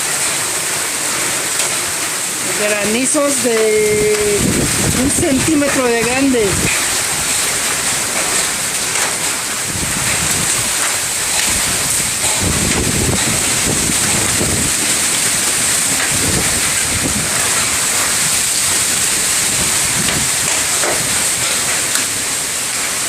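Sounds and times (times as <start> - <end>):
heavy rain with hail: 0.0 - 23.0
wind buffeting microphone: 2.7 - 22.4.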